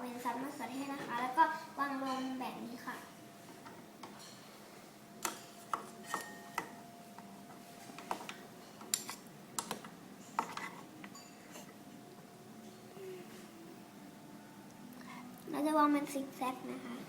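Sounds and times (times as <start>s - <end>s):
faint steady hum: 0.0s - 17.0s
utensils and dishes clinking: 2.0s - 2.4s, 3.6s - 4.6s, 5.2s - 6.8s, 8.0s - 12.0s.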